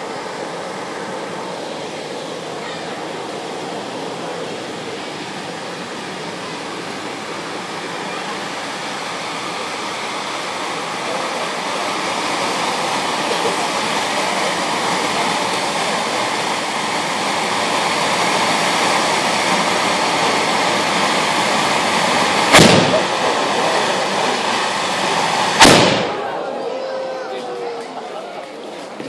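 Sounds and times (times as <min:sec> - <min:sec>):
fireworks spraying rushing hiss: 0:00.0 - 0:29.0
sharp bangs: 0:22.4 - 0:23.4, 0:25.5 - 0:26.4.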